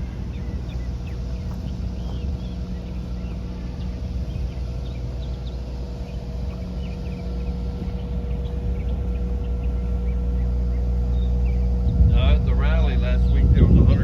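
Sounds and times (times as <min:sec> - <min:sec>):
small birds chirping: 0:00.0 - 0:13.7
low motor hum: 0:00.0 - 0:14.0
thin steady whine: 0:00.0 - 0:14.0.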